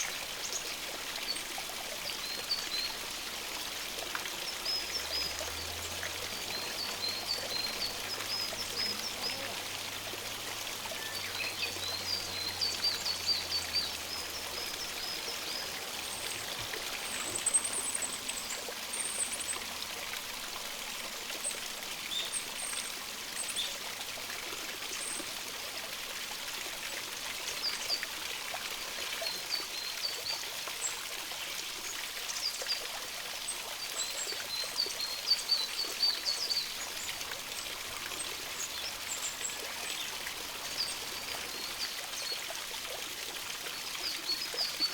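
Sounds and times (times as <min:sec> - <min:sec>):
stream running: 0:00.0 - 0:44.9
songbirds chirping: 0:04.3 - 0:19.7, 0:33.8 - 0:43.0.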